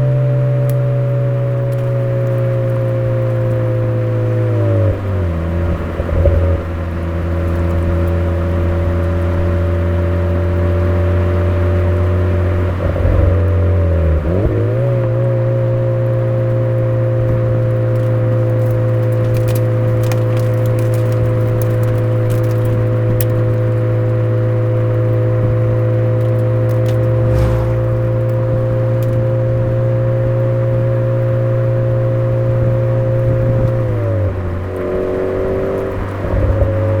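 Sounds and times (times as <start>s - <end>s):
car engine droning: 0.0s - 37.0s
light clicks and rattles: 17.9s - 23.7s.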